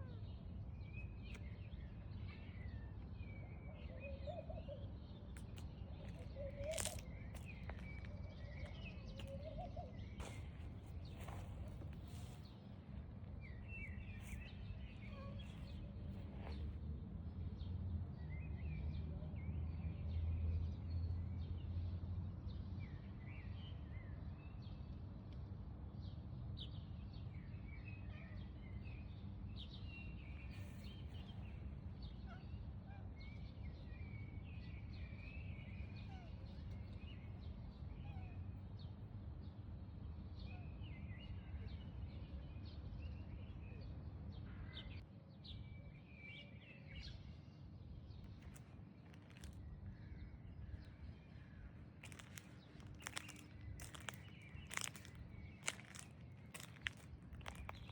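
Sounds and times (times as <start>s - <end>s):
small birds chirping: 0.0s - 16.8s, 47.8s - 57.9s.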